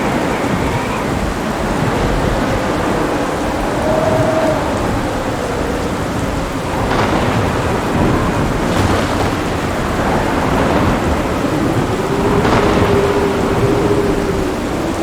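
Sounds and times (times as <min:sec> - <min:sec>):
heavy rain: 0:00.0 - 0:15.0
thunder rumbling: 0:00.0 - 0:15.0
sharp thunder cracks: 0:06.0 - 0:15.0.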